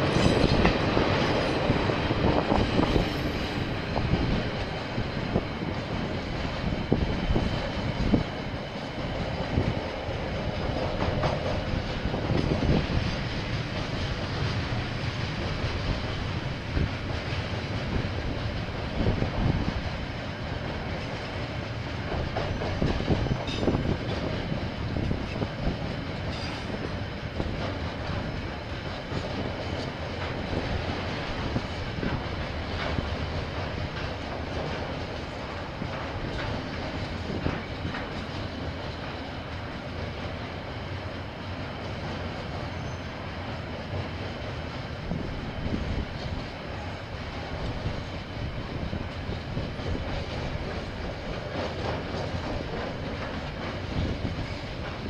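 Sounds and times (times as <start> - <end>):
train wheels rumbling: 0.0 - 55.0.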